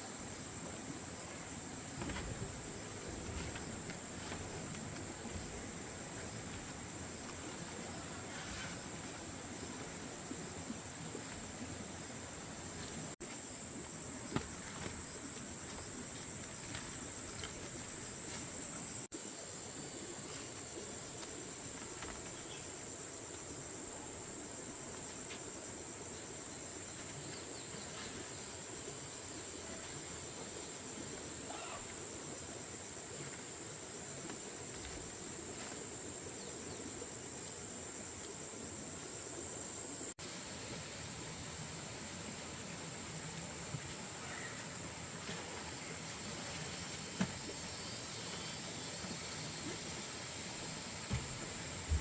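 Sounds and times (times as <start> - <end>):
insects chirring: 0.0 - 52.0
shrill insect chorus: 25.6 - 33.7.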